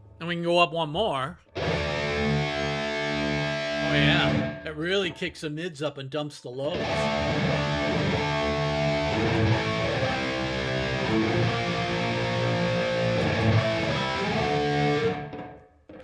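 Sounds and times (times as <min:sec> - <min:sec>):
electric guitar chords: 0:01.5 - 0:04.7, 0:06.7 - 0:16.0.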